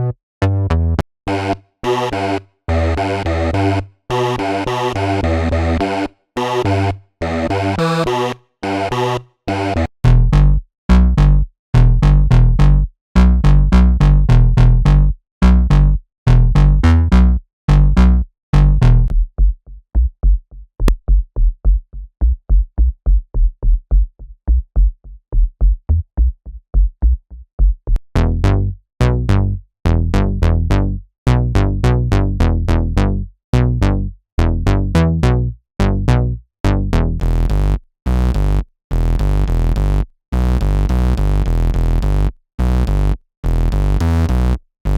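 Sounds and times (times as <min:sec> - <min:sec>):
synthesizer riff: 0:00.7 - 0:10.4.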